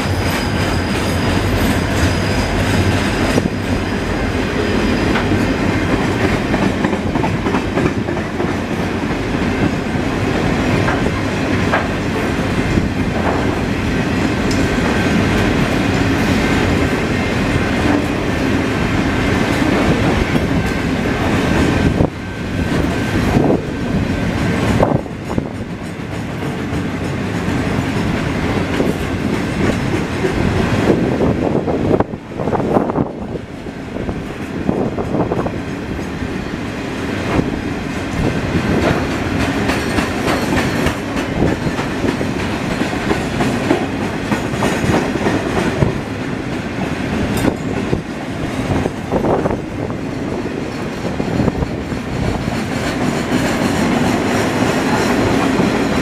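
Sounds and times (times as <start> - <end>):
freight wagons rumbling on rails: 0.0 - 56.0
wheels clicking over rail joints: 37.3 - 46.1.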